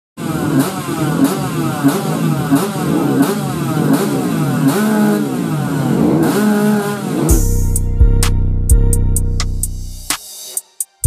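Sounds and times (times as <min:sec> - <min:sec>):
motorcycle engine revving: 0:00.2 - 0:08.0.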